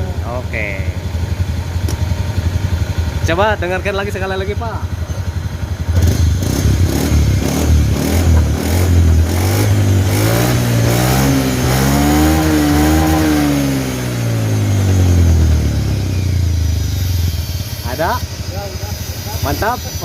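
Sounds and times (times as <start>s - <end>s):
scooter engine idling and revving: 0.0s - 20.0s.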